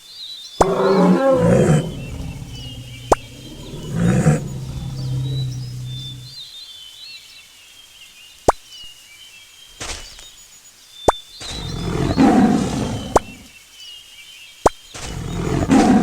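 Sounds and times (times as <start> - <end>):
birds chirping: 0.6 - 6.4, 11.5 - 13.5, 15.1 - 16.0
wild animal roaring: 0.6 - 6.4, 11.5 - 13.5, 15.0 - 16.0.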